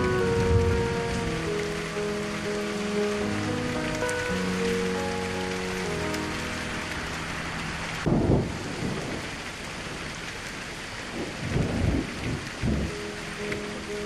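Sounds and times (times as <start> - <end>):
steady rain: 0.0 - 14.0
thunder rumbling: 0.0 - 14.0.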